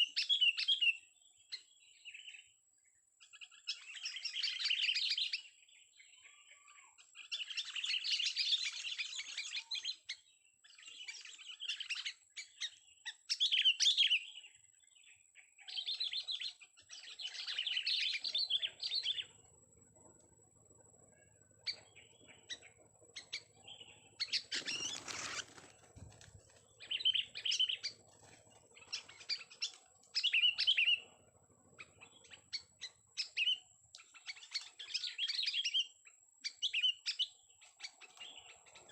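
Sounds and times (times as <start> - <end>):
bird singing chattering phrases: 15.6 - 19.6, 20.7 - 38.9
rustling: 24.3 - 27.2.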